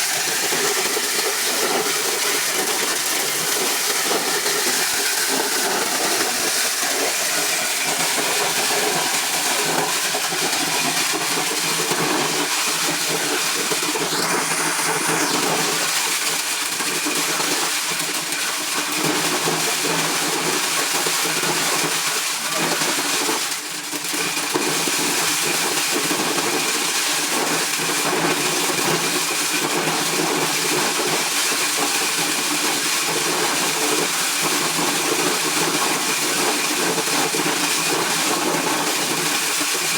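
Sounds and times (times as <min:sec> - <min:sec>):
corn-shelling machine rushing: 0:00.0 - 0:17.4.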